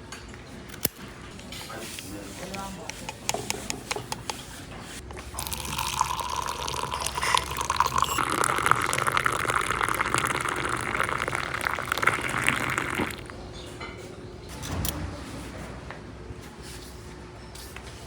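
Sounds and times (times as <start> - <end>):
liquid pouring into container: 5.1 - 13.3.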